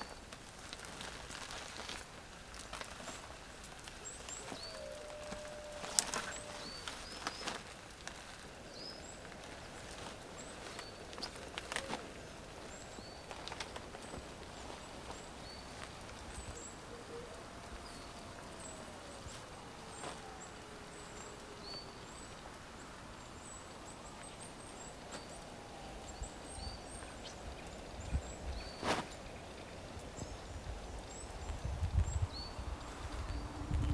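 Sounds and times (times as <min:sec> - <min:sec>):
small birds chirping: 0:00.0 - 0:33.9
slow wavering whistle: 0:04.4 - 0:07.4.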